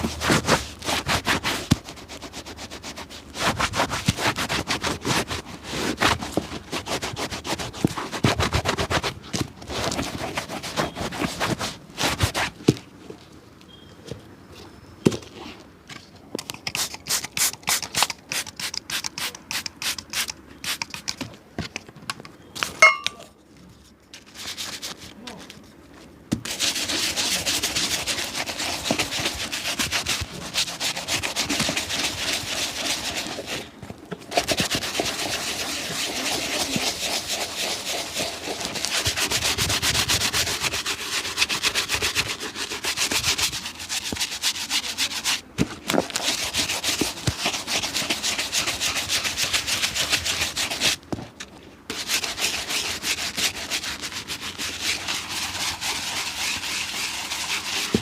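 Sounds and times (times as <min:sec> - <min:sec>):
hand scrubbing a shoe: 0:00.0 - 0:12.6, 0:24.2 - 0:25.5, 0:26.4 - 0:51.0, 0:51.9 - 0:58.0.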